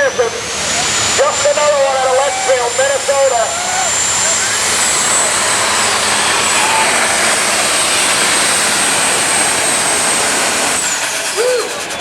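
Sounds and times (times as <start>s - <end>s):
tractor diesel engine roaring: 0.0s - 12.0s
turbo whistle: 10.8s - 12.0s.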